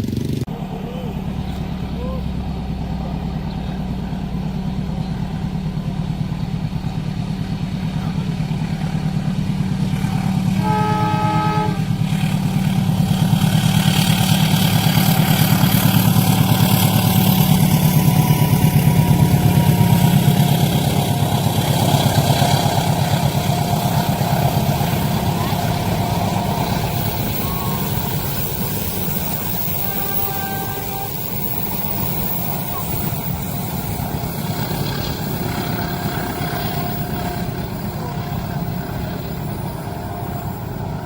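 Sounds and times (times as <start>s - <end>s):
diesel engine drone: 0.0s - 41.0s
train wheels rumbling: 0.0s - 41.0s
train horn: 9.9s - 41.0s.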